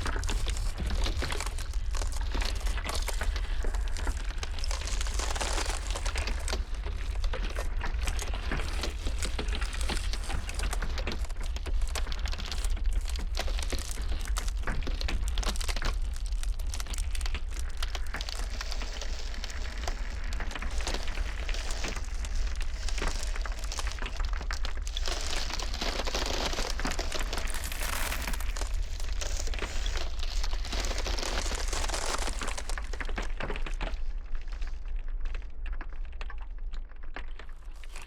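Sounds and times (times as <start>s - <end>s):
ice cracking and popping: 0.0s - 38.0s.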